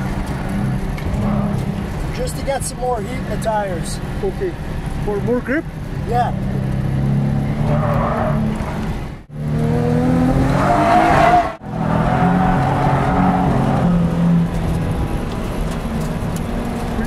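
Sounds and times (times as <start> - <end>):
car engine revving hard: 6.2 - 15.6.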